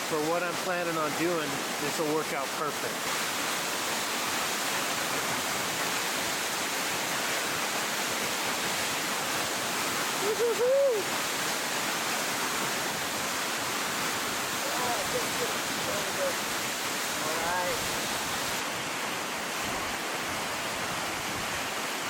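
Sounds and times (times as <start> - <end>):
waterfall roaring: 0.0 - 22.0.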